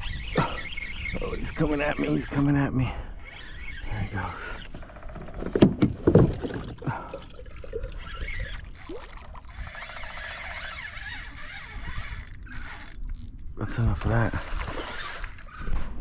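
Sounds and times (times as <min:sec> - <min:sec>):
water sloshing against kayak hull: 0:04.5 - 0:10.7, 0:14.0 - 0:16.0.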